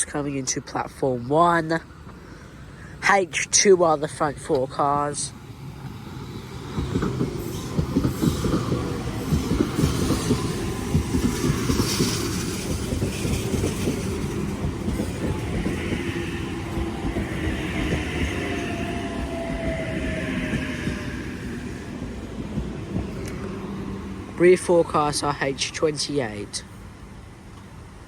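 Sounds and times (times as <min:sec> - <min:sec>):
train wheels clattering on rails: 0:05.8 - 0:24.2.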